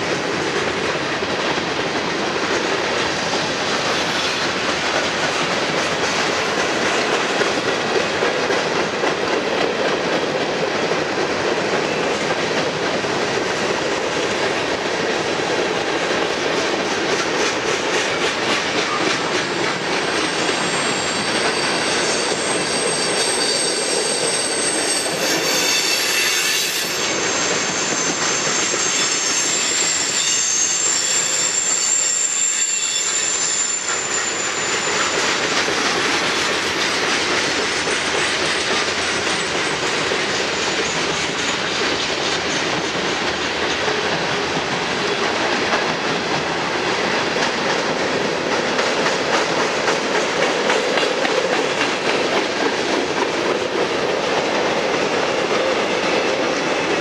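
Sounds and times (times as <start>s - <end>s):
freight train wheels rumbling: 0.0s - 57.0s
high wheel squeal: 20.0s - 36.4s.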